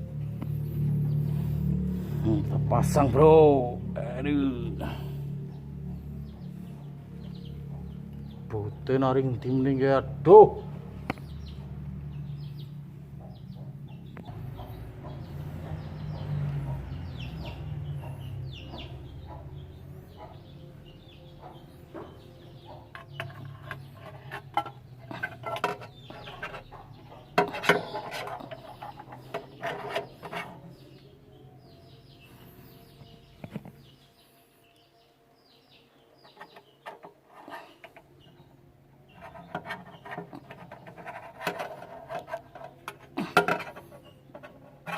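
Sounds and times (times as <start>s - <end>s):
low hum: 0.0s - 8.8s
chickens clucking: 11.0s - 34.0s, 36.2s - 44.9s
clicks and knocks of parts: 22.9s - 26.6s, 39.2s - 44.9s.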